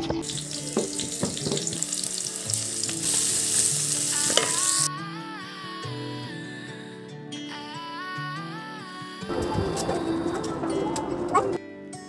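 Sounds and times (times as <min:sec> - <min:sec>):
soft background music: 0:00.0 - 0:12.0
onions and garlic sizzling in oil: 0:00.2 - 0:04.9.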